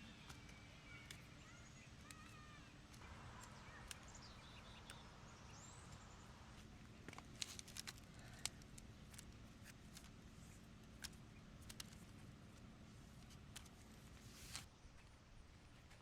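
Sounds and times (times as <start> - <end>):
faint high bird chirps: 0.0 - 6.4
low steady background hum: 0.0 - 16.0.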